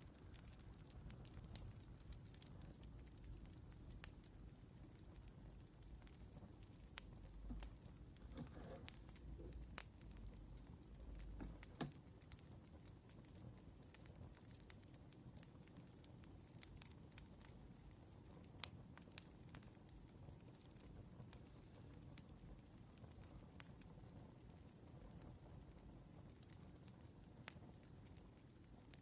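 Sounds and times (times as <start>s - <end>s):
wood fire crackling: 0.0s - 29.0s
soft rustle: 5.5s - 9.8s.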